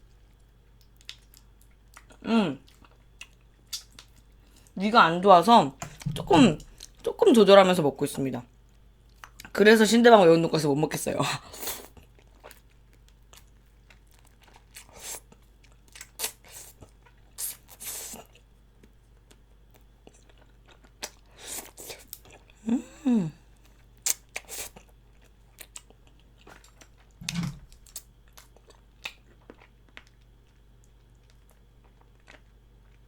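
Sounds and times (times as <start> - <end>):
crunchy chewing: 0.2 - 4.8, 11.7 - 22.6, 23.5 - 33.0
person humming: 22.6 - 23.4.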